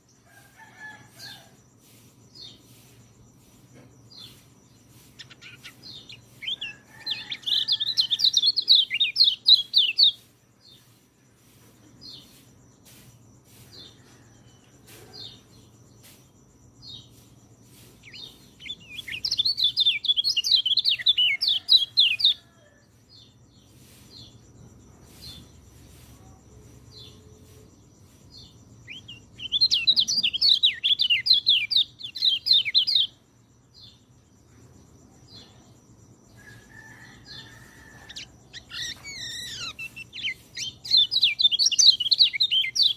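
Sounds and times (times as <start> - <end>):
faint bird chirps: 0.0 - 42.9
bird singing high-pitched song: 4.0 - 13.0, 16.8 - 22.4, 25.1 - 34.0, 38.0 - 42.9.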